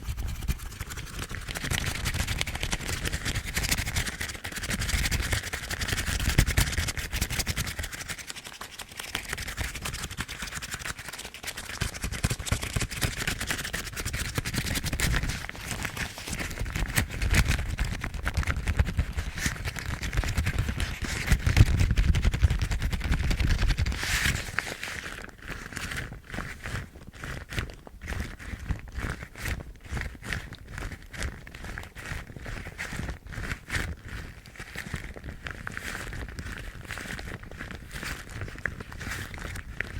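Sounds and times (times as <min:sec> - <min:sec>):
rubber gloves rubbing and squeaking: 0:00.0 - 0:39.9.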